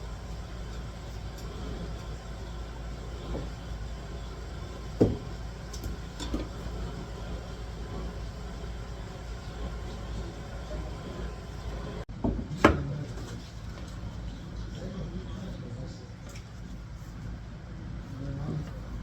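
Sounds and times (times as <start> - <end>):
steady low hum: 0.0 - 12.1
knocks on a cutting board: 5.0 - 5.2.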